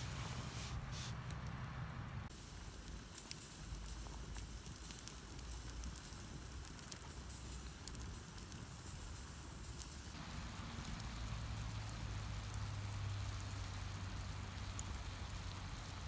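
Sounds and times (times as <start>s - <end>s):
campfire crackling and popping: 0.0s - 16.0s
low steady background noise: 0.0s - 16.0s.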